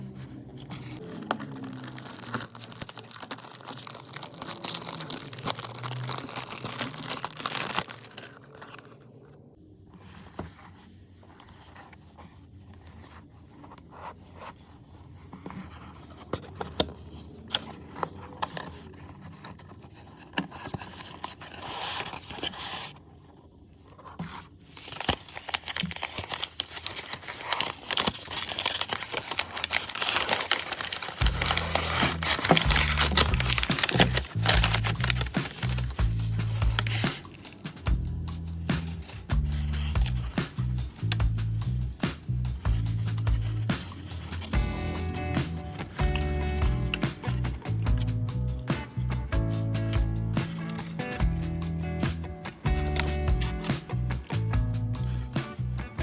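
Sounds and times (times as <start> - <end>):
packaging tearing and crinkling: 0.0 - 9.2, 17.5 - 23.0, 24.3 - 37.6.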